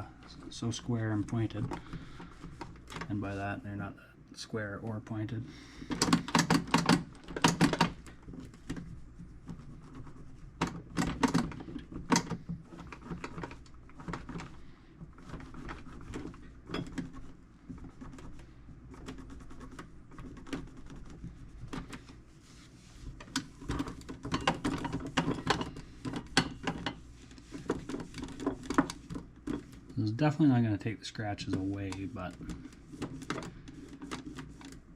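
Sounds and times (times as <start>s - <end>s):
cloth rubbing on metal toolbox: 12.6s - 34.9s.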